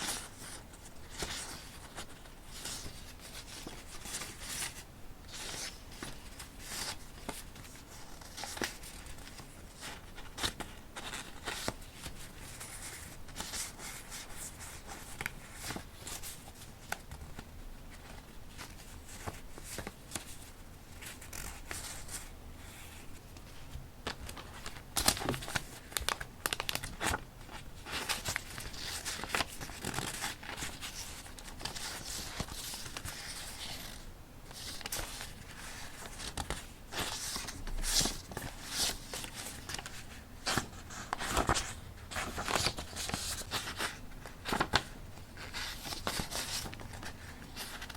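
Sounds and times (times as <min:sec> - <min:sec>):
sharp paper crackles: 0:24.1 - 0:47.9
paper rustling and tearing: 0:34.6 - 0:47.9.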